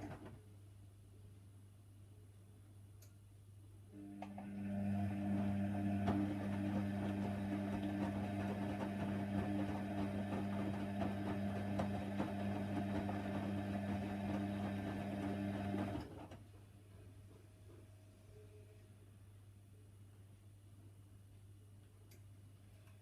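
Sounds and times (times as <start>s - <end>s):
washer dryer humming: 4.0s - 16.4s.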